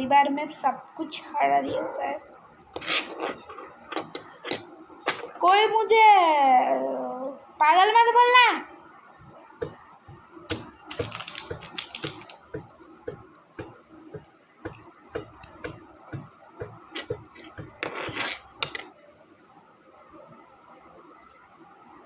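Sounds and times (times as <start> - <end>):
plastic model parts clicking: 10.5 - 12.4.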